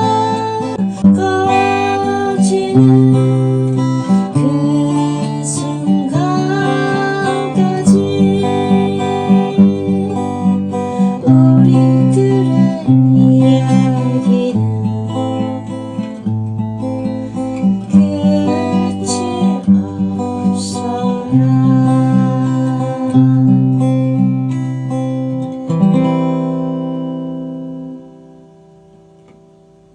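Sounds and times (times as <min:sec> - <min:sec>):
acoustic guitar strumming chords: 0:00.0 - 0:29.9.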